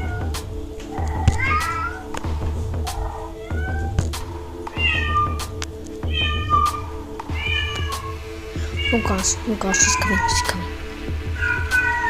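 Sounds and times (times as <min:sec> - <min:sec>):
cat meowing: 0:00.0 - 0:02.1, 0:02.9 - 0:04.0, 0:04.7 - 0:05.5, 0:06.1 - 0:10.7, 0:11.4 - 0:12.0
background music with low beat: 0:00.0 - 0:12.0.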